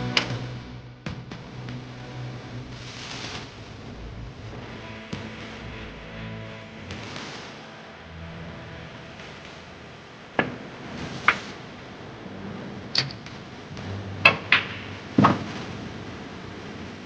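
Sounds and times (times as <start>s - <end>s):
billiard balls clicking: 13.0s - 15.5s
cue striking ball: 13.8s - 15.5s.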